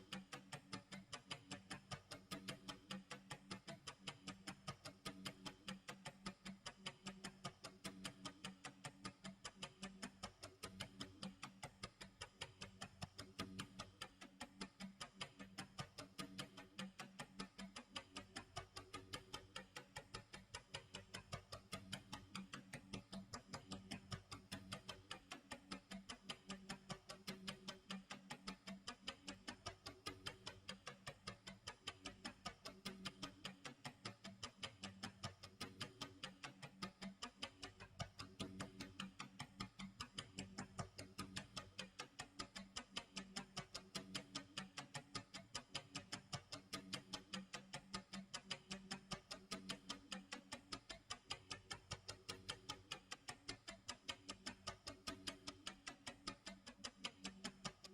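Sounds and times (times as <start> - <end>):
clock ticking: 0.0 - 57.9.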